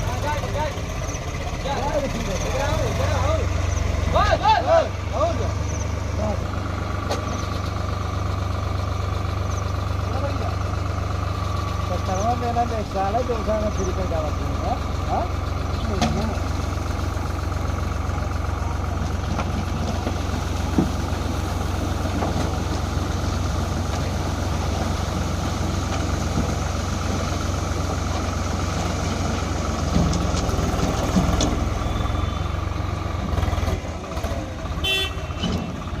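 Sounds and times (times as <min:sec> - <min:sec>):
diesel engine running: 0:00.0 - 0:36.0
short horn toot: 0:34.8 - 0:35.5.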